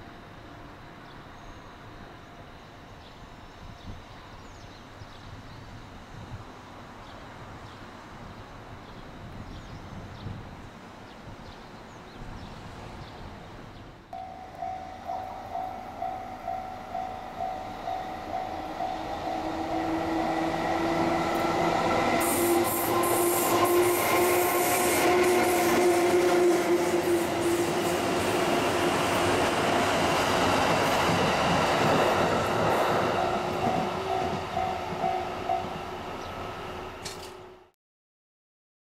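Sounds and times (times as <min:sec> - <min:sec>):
electric train passing: 0:11.7 - 0:37.7
level-crossing warning bell: 0:14.2 - 0:21.9, 0:33.1 - 0:36.4
train motor whine: 0:14.2 - 0:37.6.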